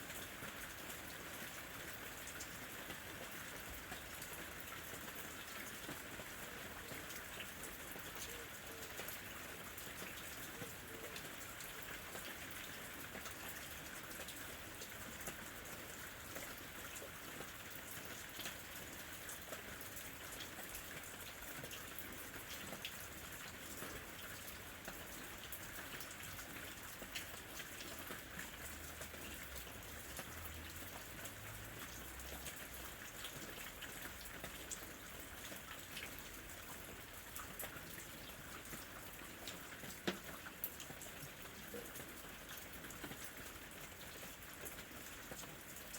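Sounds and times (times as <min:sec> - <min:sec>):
rain pattering on leaves: 0:00.0 - 0:45.9.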